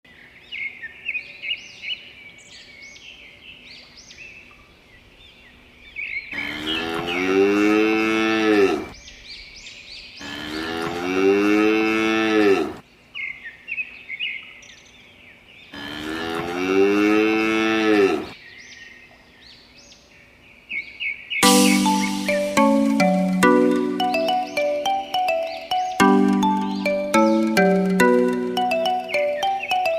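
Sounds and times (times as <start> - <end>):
cows mooing: 15.8 - 18.3
small birds chirping: 18.4 - 29.9.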